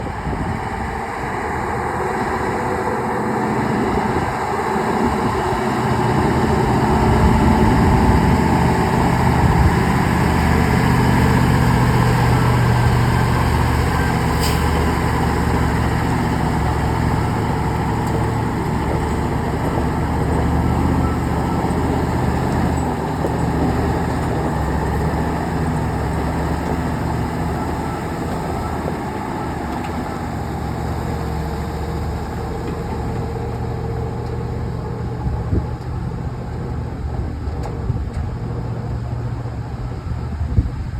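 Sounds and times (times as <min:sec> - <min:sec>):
truck engine running under load: 0:00.0 - 0:40.9.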